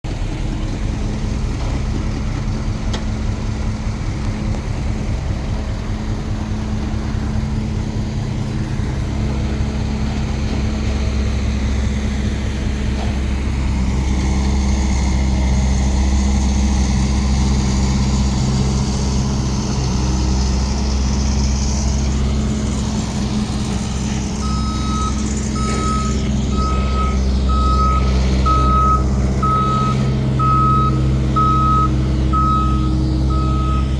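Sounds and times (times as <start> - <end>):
construction machine engine running: 0.0 - 33.9
reversing alarm beeping: 24.4 - 33.9.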